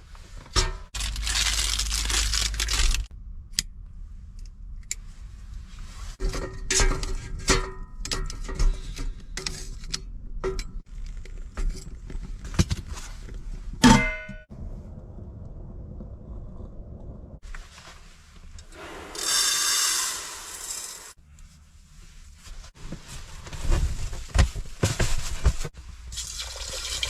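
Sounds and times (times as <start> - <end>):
rushing noise: 18.8 - 21.2.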